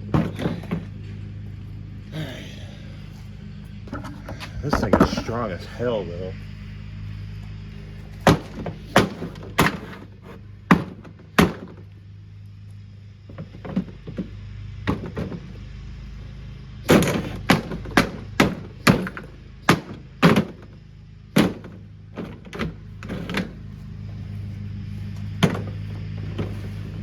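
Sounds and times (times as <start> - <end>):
hard blows on washing machine: 0.0 - 1.2, 7.8 - 11.9, 13.3 - 27.0
steady low hum: 0.0 - 27.0.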